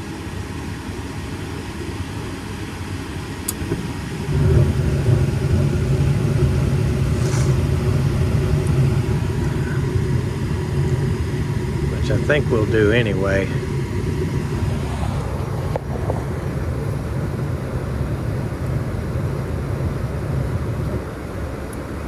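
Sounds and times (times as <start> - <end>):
furnace burners rumbling: 0.0 - 22.0
furnace mechanical hum: 0.0 - 22.0
furnace ignition click: 3.4 - 14.3.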